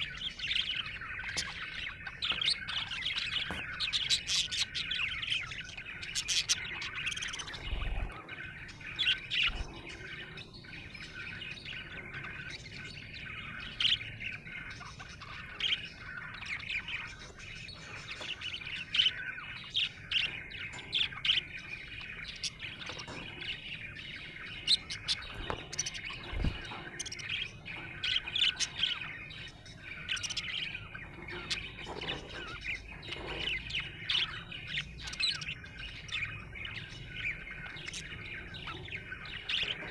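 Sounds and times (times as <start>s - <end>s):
budgerigar chattering: 0.0s - 8.2s.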